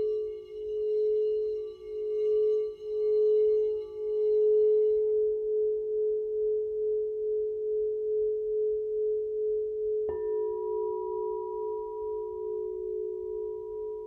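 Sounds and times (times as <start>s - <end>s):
singing bowl ringing: 0.0s - 5.8s, 9.0s - 14.0s.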